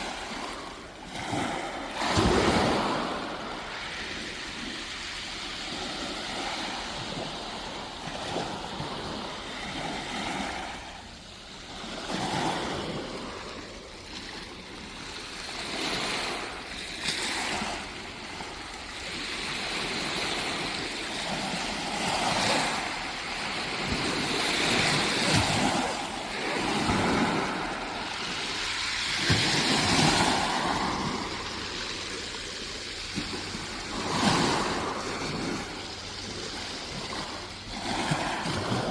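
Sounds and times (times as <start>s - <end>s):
waves breaking on a beach: 0.0s - 38.9s.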